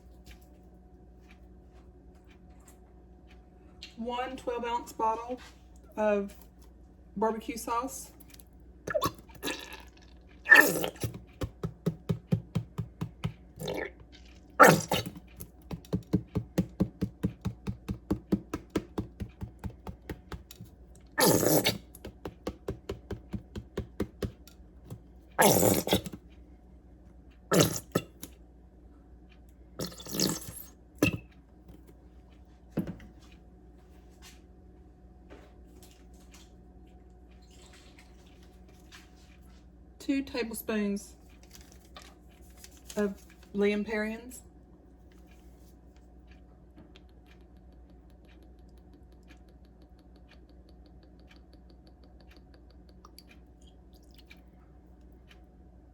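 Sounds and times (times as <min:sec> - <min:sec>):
sauce glugging out of a bottle: 0:08.9 - 0:11.2, 0:13.6 - 0:15.2, 0:21.2 - 0:21.9, 0:25.4 - 0:26.2, 0:27.5 - 0:28.2, 0:29.8 - 0:31.2
bottle sputtering squirts: 0:21.2 - 0:21.8, 0:27.5 - 0:28.1, 0:29.8 - 0:31.2.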